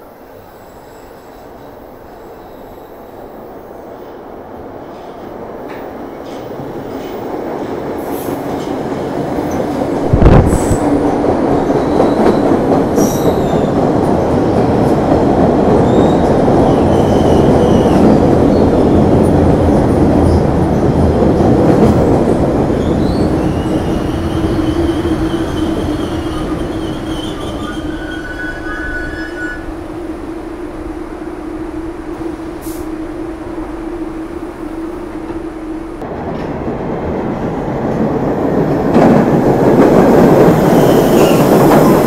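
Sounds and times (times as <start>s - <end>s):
train passing on rails: 0.0s - 42.0s
faint wheel squeal: 25.3s - 29.6s.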